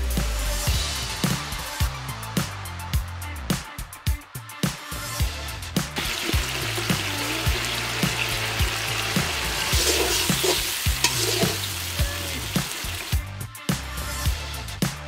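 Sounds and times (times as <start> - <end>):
background music with beat: 0.0 - 15.0
gravy sizzling: 6.0 - 13.2
metal ladle scraping pan: 9.6 - 13.1.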